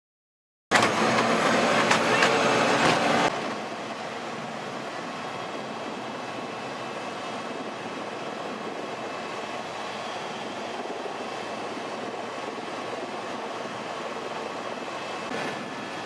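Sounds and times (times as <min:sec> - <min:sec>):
helicopter running: 0:00.7 - 0:16.0.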